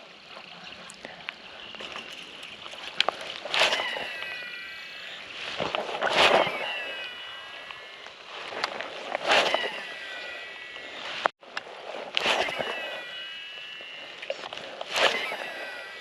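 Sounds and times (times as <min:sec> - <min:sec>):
reel brake whining: 0:01.6 - 0:16.0
fishing rod swish: 0:03.4 - 0:04.2, 0:05.4 - 0:07.1, 0:08.4 - 0:09.8, 0:11.8 - 0:13.1, 0:14.8 - 0:15.8.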